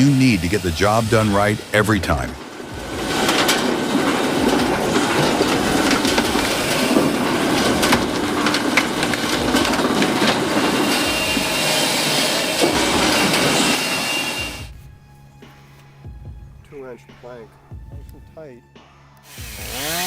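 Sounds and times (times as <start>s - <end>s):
wood chipper shredding branches: 0.0s - 14.8s, 19.3s - 20.0s.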